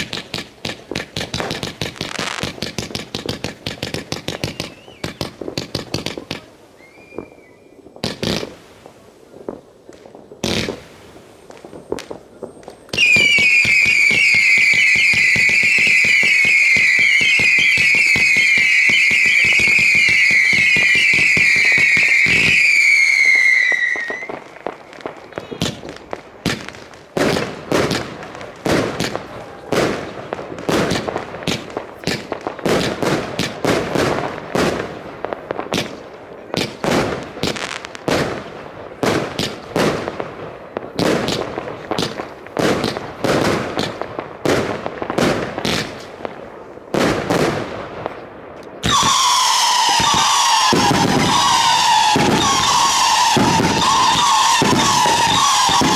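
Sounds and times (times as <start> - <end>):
firework bangs: 0.0 - 55.9
falling firework whistles: 3.7 - 6.2, 6.8 - 8.6, 10.4 - 25.8, 48.8 - 55.9.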